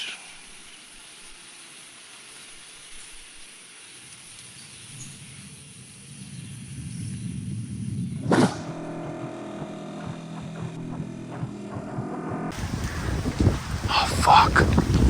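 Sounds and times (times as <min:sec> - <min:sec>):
light rain hissing: 0:00.0 - 0:08.2, 0:12.5 - 0:15.0.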